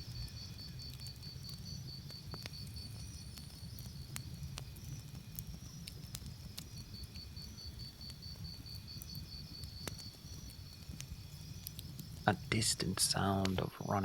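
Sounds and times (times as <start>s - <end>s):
campfire crackling and popping: 0.0s - 14.0s
crickets chirping: 0.0s - 14.0s.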